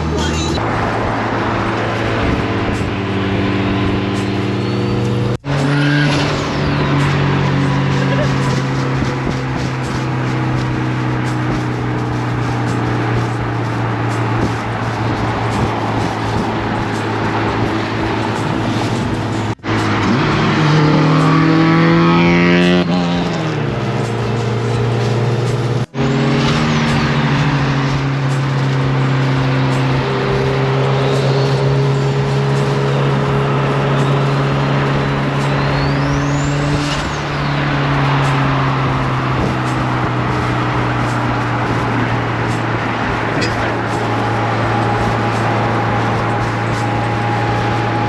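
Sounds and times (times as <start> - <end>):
car engine and road noise: 0.0 - 48.0
engine revving up: 0.0 - 48.0
gear change: 0.0 - 48.0
thin high whistle: 25.4 - 48.0.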